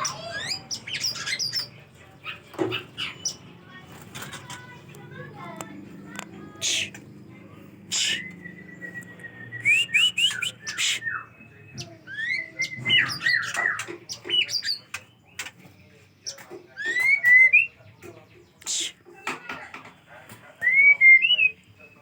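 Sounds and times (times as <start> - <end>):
harsh raspy bird notes: 0.0 - 3.6, 4.2 - 15.2, 18.6 - 19.3
songbird singing: 0.0 - 22.0.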